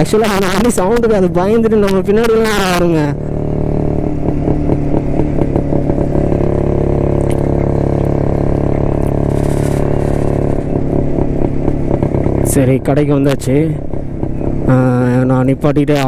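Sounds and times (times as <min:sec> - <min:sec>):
two-stroke motorcycle engine running: 0:00.0 - 0:16.0
short crackles: 0:09.0 - 0:10.7.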